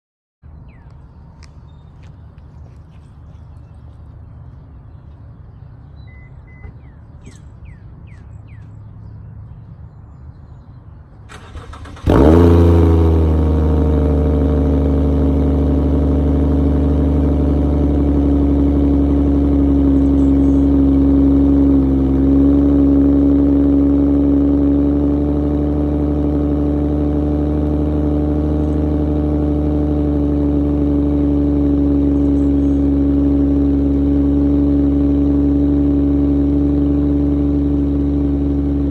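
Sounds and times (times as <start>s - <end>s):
car engine starting and idling: 11.1s - 38.9s.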